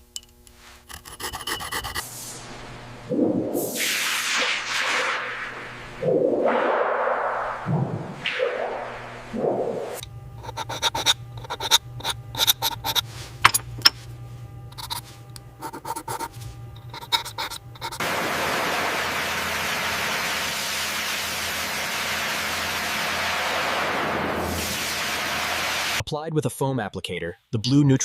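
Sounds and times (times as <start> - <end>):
low steady hum: 0.0 - 3.6, 7.3 - 21.6
sharp clicks and scrapes: 0.2 - 2.0, 10.4 - 14.0, 14.7 - 18.0.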